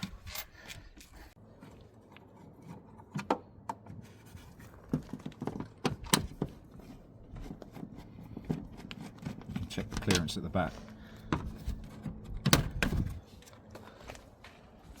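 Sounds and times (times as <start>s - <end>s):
light knocks and clunks: 11.2s - 13.2s.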